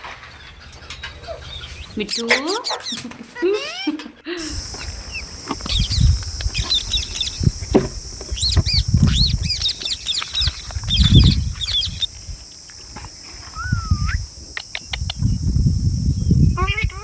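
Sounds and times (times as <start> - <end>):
parrots squawking: 0.0 - 7.6, 13.6 - 14.2
low thumps and rumbling: 4.6 - 12.4
rising whistle: 13.5 - 14.2.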